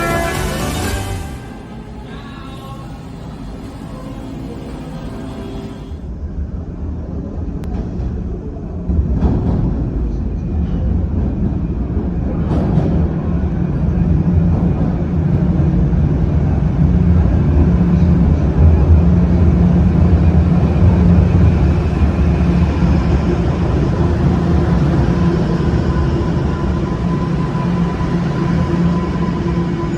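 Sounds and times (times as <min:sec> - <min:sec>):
faint high whine: 0:00.0 - 0:06.2, 0:17.4 - 0:29.9
subway train rumble: 0:00.0 - 0:29.9.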